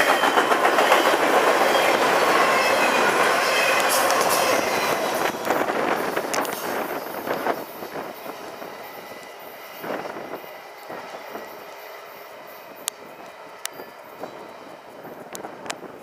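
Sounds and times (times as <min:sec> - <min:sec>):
train wheels clattering over rails: 0:00.0 - 0:08.6.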